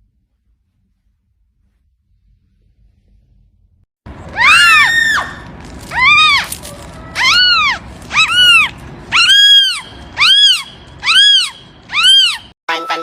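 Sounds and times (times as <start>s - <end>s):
cat meowing loudly: 4.4s - 12.5s.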